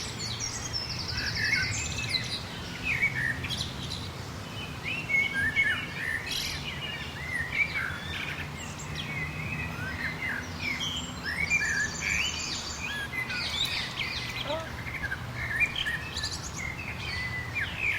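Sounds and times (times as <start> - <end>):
small birds chirping: 0.0 - 17.9.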